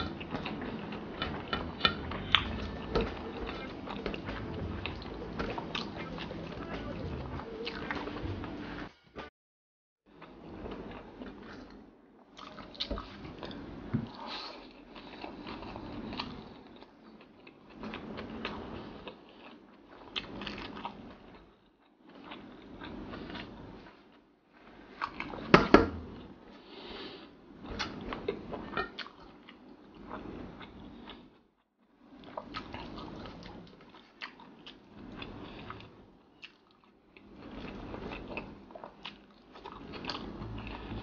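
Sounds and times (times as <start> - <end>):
wet chewing and mouth clicks: 0.0 - 8.4, 32.2 - 41.0.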